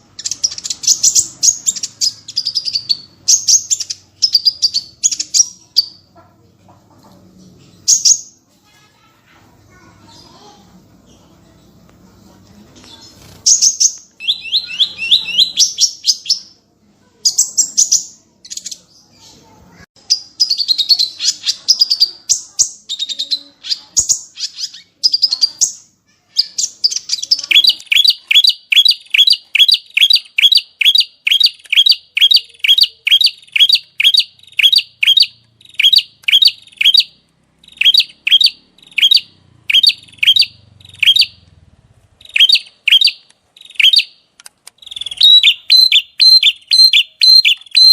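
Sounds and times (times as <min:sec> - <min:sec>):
sharp repeated bird notes: 0:00.0 - 0:06.1, 0:13.2 - 0:16.6, 0:17.2 - 0:47.9
songbird singing trills: 0:13.2 - 0:16.6, 0:17.3 - 0:41.6, 0:42.2 - 0:47.9.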